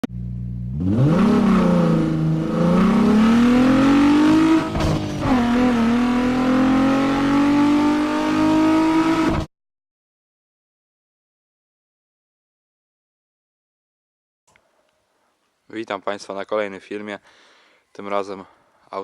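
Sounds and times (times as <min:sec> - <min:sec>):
car engine revving: 0:00.1 - 0:09.5.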